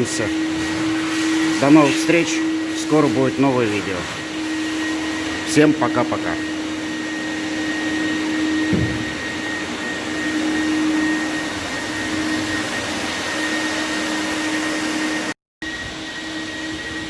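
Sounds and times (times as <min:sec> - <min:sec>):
short thump: 0:08.7 - 0:09.2.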